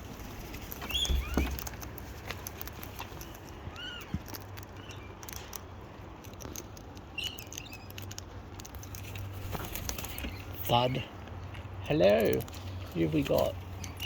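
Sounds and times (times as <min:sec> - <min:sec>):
birds pecking on hard surface: 0:00.0 - 0:14.0
faint bird chirps: 0:00.8 - 0:01.5, 0:07.1 - 0:08.0.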